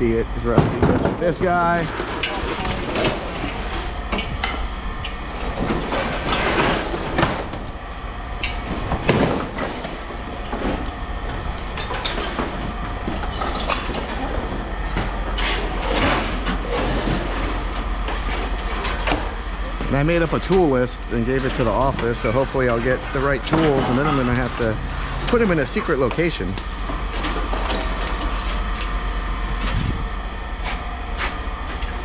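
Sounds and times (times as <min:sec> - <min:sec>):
steady low hum: 0:00.0 - 0:32.0
scrap metal clanking: 0:00.6 - 0:04.6, 0:08.5 - 0:28.7.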